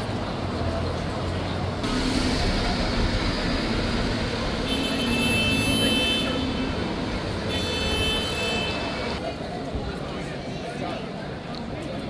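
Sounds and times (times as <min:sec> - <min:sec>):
vehicle passing on street: 0:00.0 - 0:09.2.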